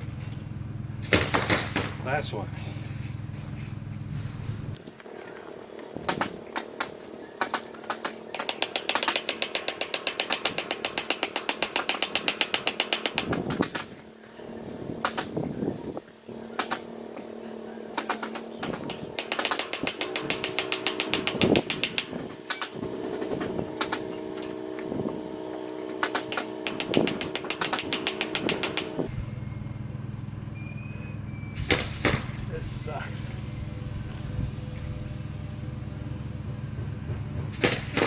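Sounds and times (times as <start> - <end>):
impact driver hammering: 8.3 - 14.0, 18.0 - 29.1, 37.5 - 38.0.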